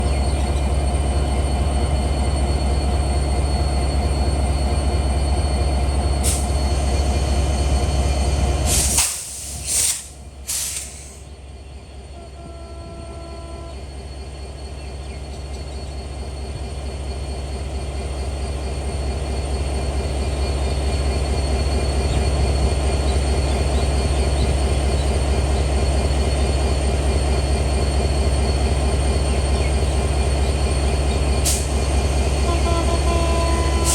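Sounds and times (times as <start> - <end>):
train rumbling past: 0.0 - 33.9.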